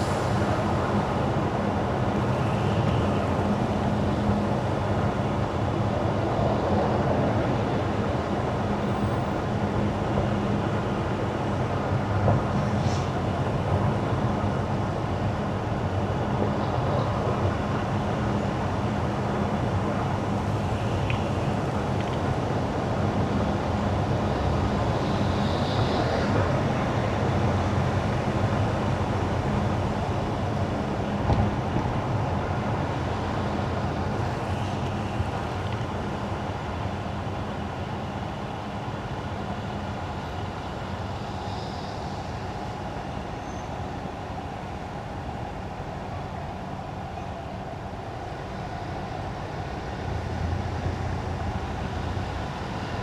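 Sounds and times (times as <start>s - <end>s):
car tyres on wet road: 0.0s - 5.8s, 18.2s - 38.3s.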